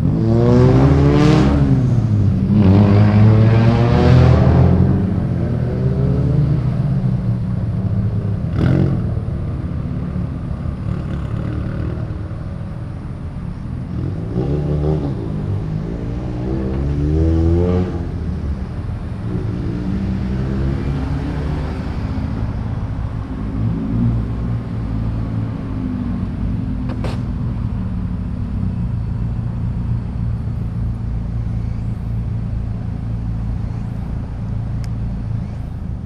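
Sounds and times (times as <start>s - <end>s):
car engines revving: 0.0s - 36.0s
car engines rumbling: 0.0s - 36.0s
sharp pop: 26.9s - 27.3s.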